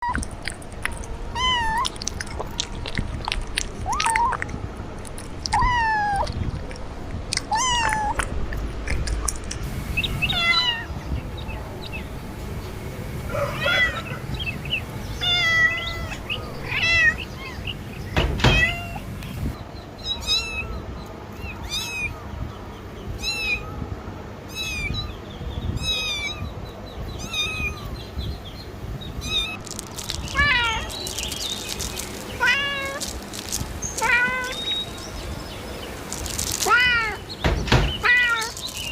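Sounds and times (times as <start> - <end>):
cat meowing: 1.4 - 1.9, 5.6 - 6.3, 7.5 - 8.2, 10.2 - 11.0, 13.3 - 14.2, 15.2 - 17.7, 18.4 - 19.1, 21.4 - 22.2, 24.5 - 25.1, 27.2 - 28.0, 29.2 - 29.6, 30.3 - 31.0, 32.4 - 33.0, 34.0 - 34.8, 36.6 - 37.2, 38.0 - 38.6.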